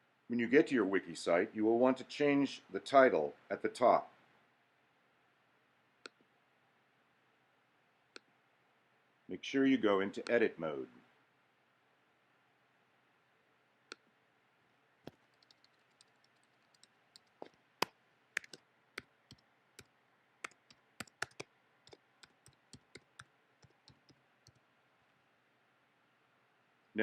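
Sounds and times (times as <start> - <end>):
keyboard keystrokes: 15.1 - 17.6, 18.4 - 18.6, 20.4 - 24.6.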